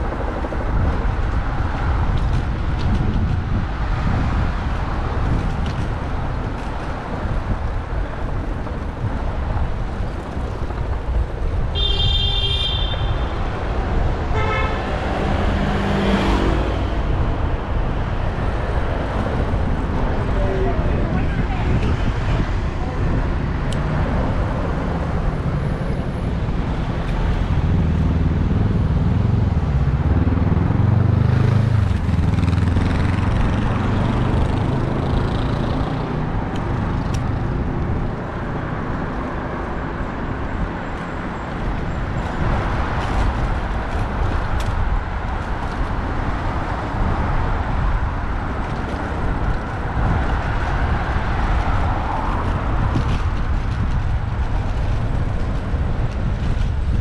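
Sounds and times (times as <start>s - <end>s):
rumble of passing vehicles: 0.0s - 57.0s
heavy vehicle engine: 13.3s - 57.0s.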